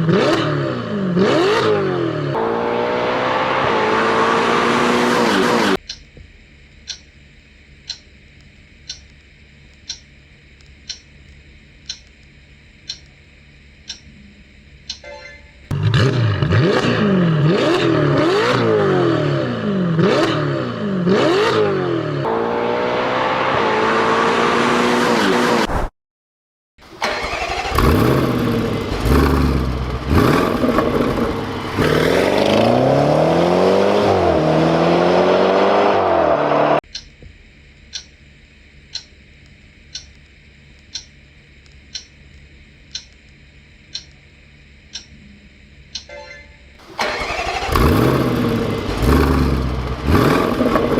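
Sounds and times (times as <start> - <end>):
car engine revving: 0.0 - 5.8, 15.7 - 25.7, 27.0 - 36.8, 46.8 - 50.9
clock ticking: 5.8 - 6.1, 6.9 - 7.1, 10.8 - 11.1, 12.9 - 13.1, 37.9 - 38.1, 38.9 - 39.1, 39.9 - 40.2, 40.9 - 41.2, 41.9 - 42.2, 42.9 - 43.2, 43.9 - 44.2, 44.9 - 45.2, 45.9 - 46.2.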